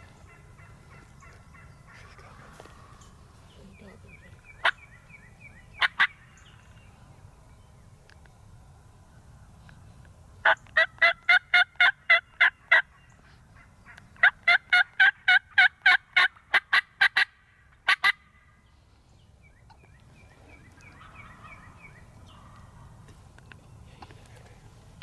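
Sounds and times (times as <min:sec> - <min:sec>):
turkey yelping: 0:04.6 - 0:04.9, 0:05.8 - 0:06.2, 0:10.4 - 0:12.9, 0:13.6 - 0:18.3, 0:20.8 - 0:22.9.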